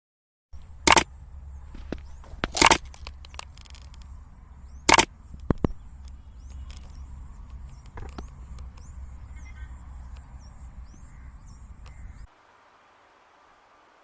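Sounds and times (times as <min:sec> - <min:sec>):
low steady rumble: 0:00.6 - 0:12.3
small clicks: 0:00.9 - 0:01.1, 0:01.9 - 0:04.1, 0:04.8 - 0:08.9.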